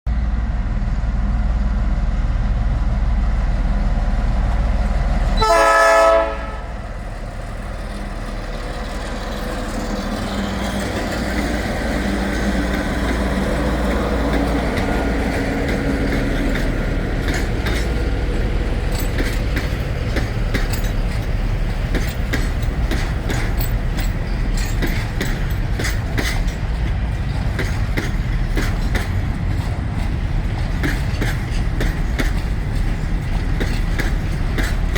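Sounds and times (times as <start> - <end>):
diesel locomotives rumbling: 0.1 - 34.9
train wheels clicking on rail joints: 4.0 - 34.9
train horn blast: 5.4 - 6.9.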